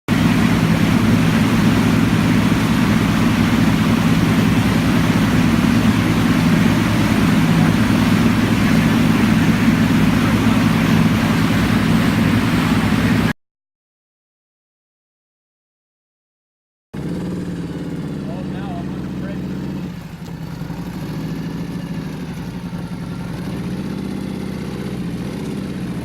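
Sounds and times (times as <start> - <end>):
motorcycle engine running: 0.1 - 13.3, 17.0 - 26.0.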